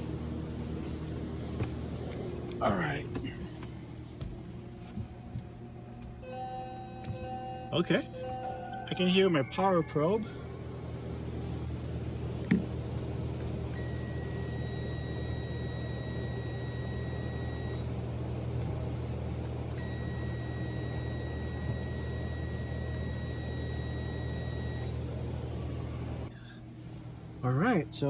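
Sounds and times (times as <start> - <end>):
low hum: 0.0 - 28.0
high-pitched probe tone: 13.8 - 17.9, 19.8 - 25.0.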